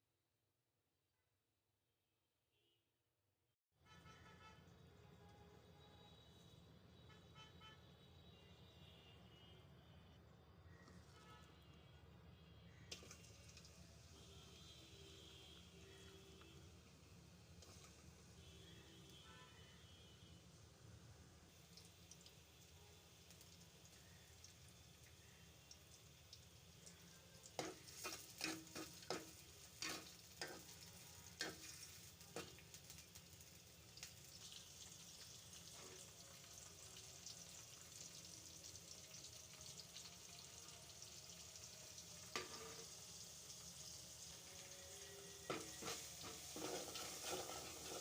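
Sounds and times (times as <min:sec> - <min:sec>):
food sizzling in a pan: 0:12.6 - 0:48.0.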